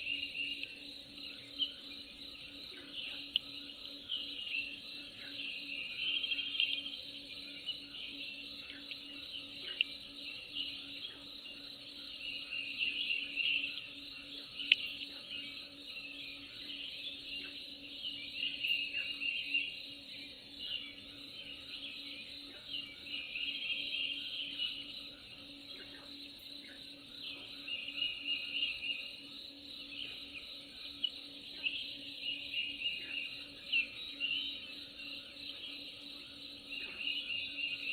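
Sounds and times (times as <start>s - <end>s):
birds chirping: 0.0s - 37.9s
faint low hum: 0.0s - 37.9s
insects chirping: 0.0s - 37.9s.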